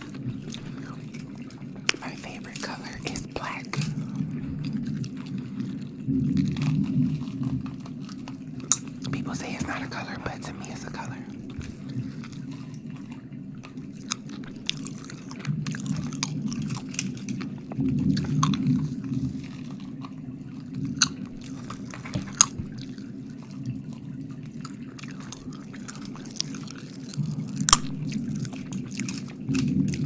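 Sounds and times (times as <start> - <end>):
wet mouth sounds: 14.0 - 20.0, 24.6 - 30.0.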